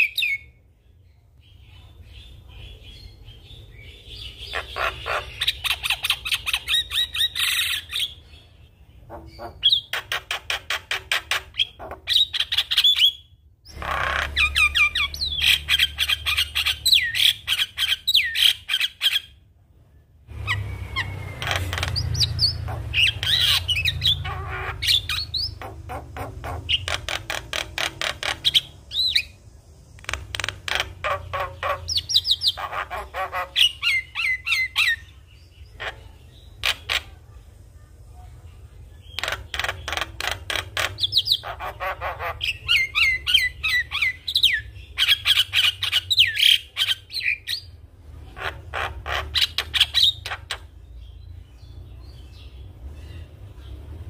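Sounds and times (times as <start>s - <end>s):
myna chattering: 4.3s - 7.7s, 9.0s - 12.3s, 20.3s - 29.2s, 30.0s - 35.0s.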